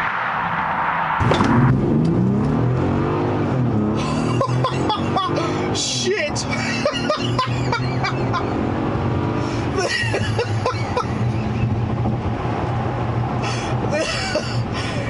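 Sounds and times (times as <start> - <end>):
car engine droning: 0.0 - 15.0
man laughing: 4.0 - 8.7, 9.7 - 11.4, 13.9 - 15.0.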